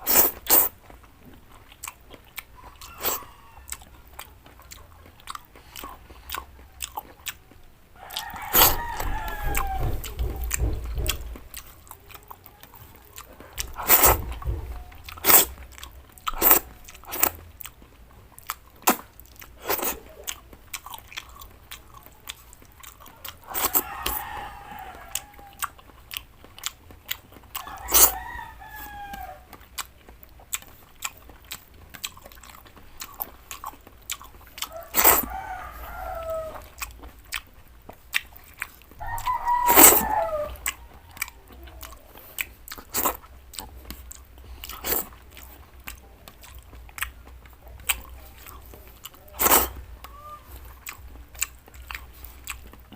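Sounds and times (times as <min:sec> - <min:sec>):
chewing and crunching vegetables: 0:00.0 - 0:52.9
rooster crowing: 0:02.6 - 0:04.3, 0:07.9 - 0:11.6, 0:22.8 - 0:25.9, 0:27.5 - 0:29.6, 0:34.6 - 0:36.9, 0:39.0 - 0:42.2, 0:48.3 - 0:51.0
mouth clicks: 0:29.1 - 0:35.4, 0:36.5 - 0:52.9.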